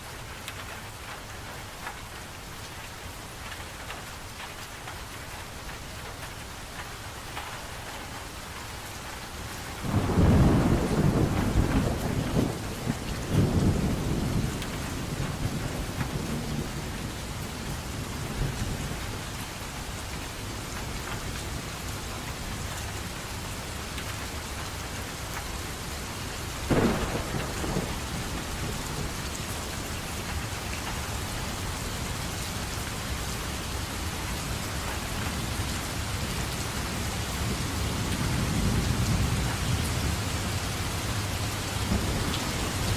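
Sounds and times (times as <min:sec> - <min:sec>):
steady rain: 0:00.0 - 0:42.9
rolling thunder: 0:09.8 - 0:17.2, 0:26.7 - 0:29.4, 0:41.8 - 0:42.9
sharp thunder clap: 0:09.9 - 0:14.4, 0:26.7 - 0:29.2.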